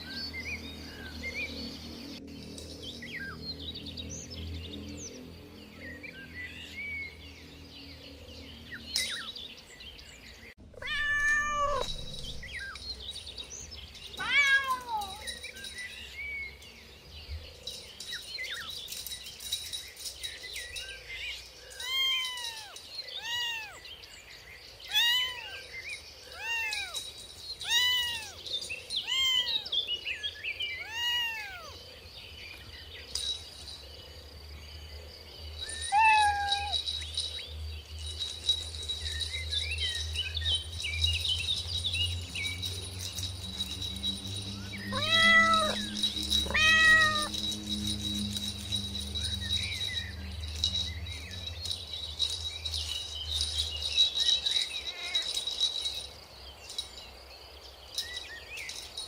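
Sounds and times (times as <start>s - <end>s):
kittens mewing: 10.7s - 12.5s, 14.2s - 15.3s, 44.8s - 47.4s.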